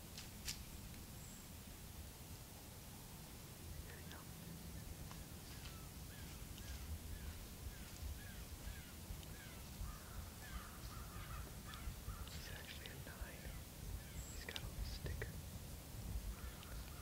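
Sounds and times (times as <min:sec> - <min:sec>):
bird chirping: 0:01.2 - 0:01.6, 0:04.7 - 0:15.2.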